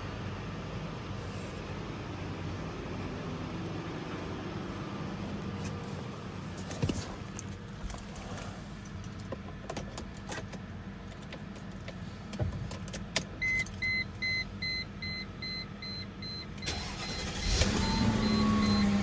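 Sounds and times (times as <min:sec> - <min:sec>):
dashboard warning chime beeping: 0:13.4 - 0:19.0
car starter cranking: 0:16.6 - 0:19.0.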